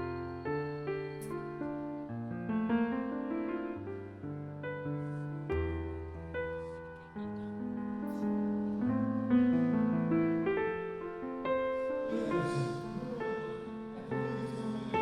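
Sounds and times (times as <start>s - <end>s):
faint hiss: 0.0s - 15.0s
slow piano chords: 0.0s - 15.0s.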